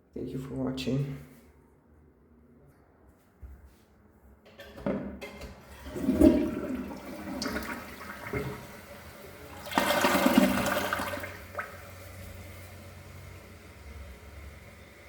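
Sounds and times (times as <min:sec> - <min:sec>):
toilet flushing: 0:04.5 - 0:15.0.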